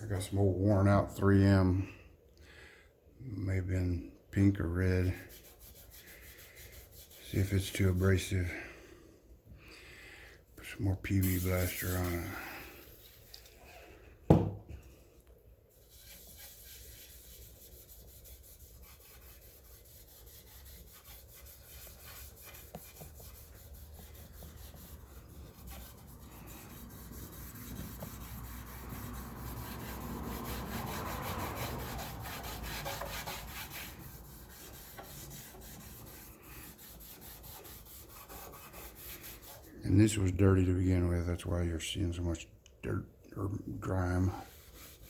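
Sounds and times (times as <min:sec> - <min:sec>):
scouring pad scrubbing painted metal: 0:11.2 - 0:13.4, 0:15.7 - 0:39.8, 0:44.0 - 0:45.0.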